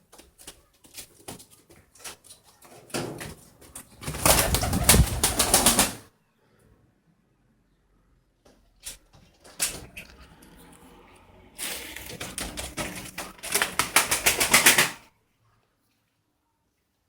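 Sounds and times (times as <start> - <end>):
bird wings flapping: 3.6 - 6.1, 12.1 - 15.0.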